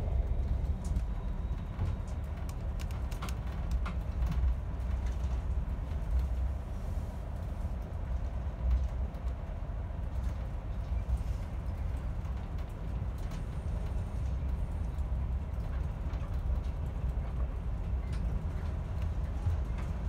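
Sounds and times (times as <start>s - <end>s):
train rumbling inside carriage: 0.0s - 20.0s.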